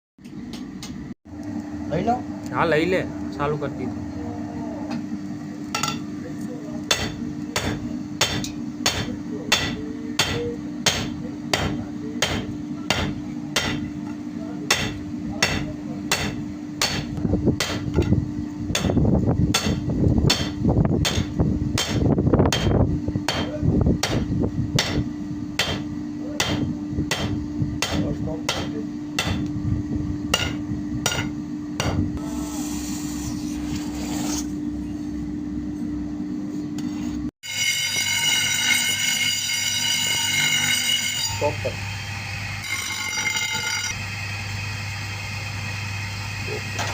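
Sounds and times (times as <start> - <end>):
motor hum: 40.2 - 46.9.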